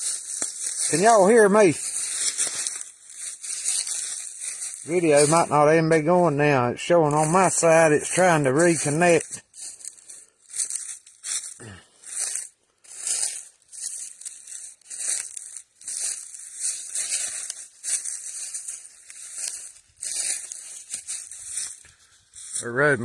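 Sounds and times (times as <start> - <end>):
footsteps crunching dry leaves: 0.0 - 23.0.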